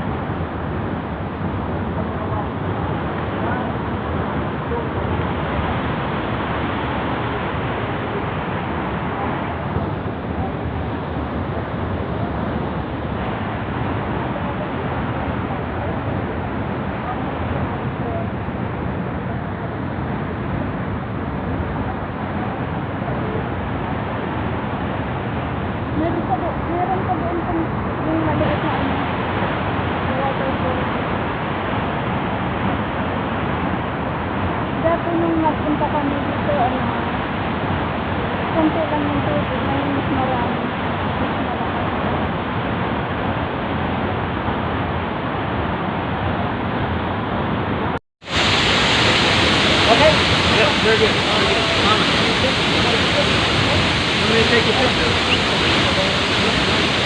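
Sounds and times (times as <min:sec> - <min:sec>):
waterfall rushing: 0:00.0 - 0:18.0, 0:48.2 - 0:57.0
waterfall rushing water: 0:00.0 - 0:57.0.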